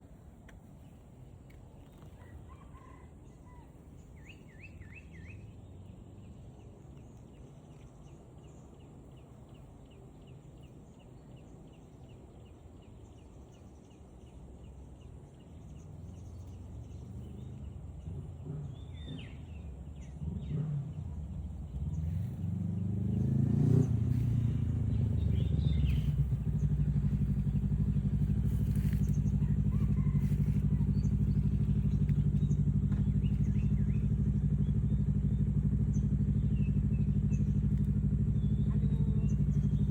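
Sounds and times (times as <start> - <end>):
vehicle engine running: 14.7 - 39.9
faint bird chirps: 23.1 - 39.9.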